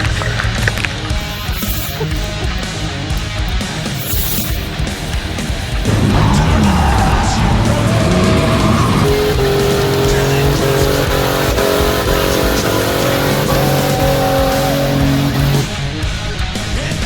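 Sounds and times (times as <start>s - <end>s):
loud rock music: 0.0s - 17.0s
engine at high revs: 5.8s - 15.8s.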